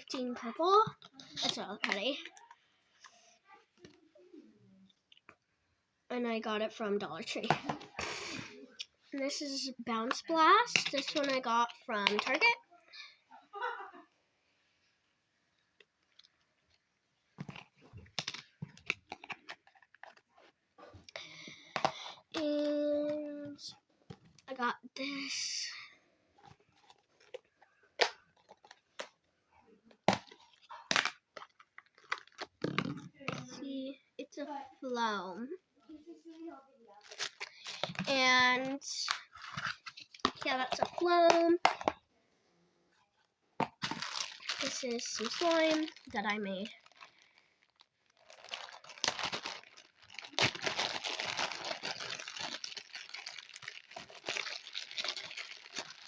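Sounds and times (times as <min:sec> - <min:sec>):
plastic bag crinkling: 0:30.3 - 0:32.7, 0:37.0 - 0:38.2, 0:43.7 - 0:56.0.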